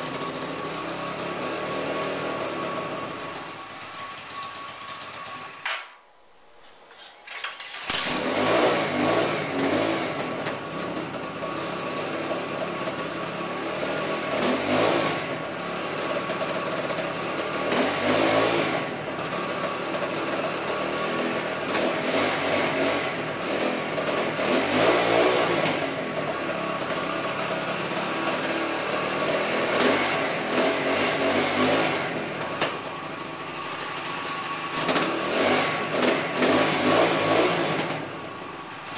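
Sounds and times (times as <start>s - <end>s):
dirt bike engine revving: 7.2s - 10.9s, 13.8s - 16.0s, 17.4s - 19.0s, 20.0s - 26.4s, 27.1s - 38.2s.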